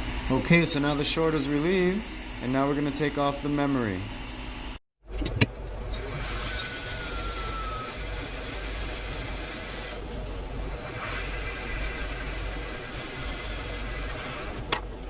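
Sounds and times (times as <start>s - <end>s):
hot air station blowing hiss: 0.0s - 3.8s, 6.0s - 14.7s.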